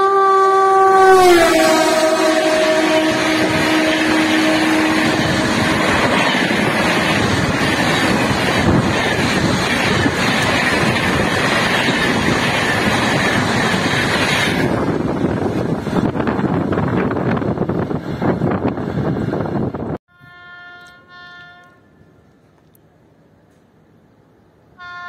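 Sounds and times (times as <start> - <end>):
locomotive horn: 0.0 - 7.0, 20.1 - 22.1, 24.8 - 25.0
train wheels rushing on rail: 0.0 - 20.0.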